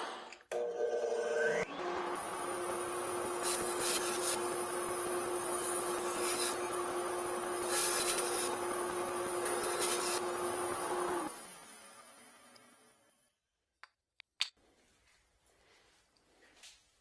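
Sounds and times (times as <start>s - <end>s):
electric motor humming: 1.7s - 12.6s.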